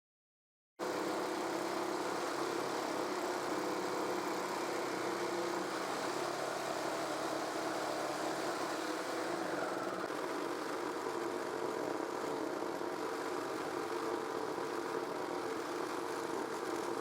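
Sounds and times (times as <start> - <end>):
jigsaw sawing wood: 0.9 - 17.0.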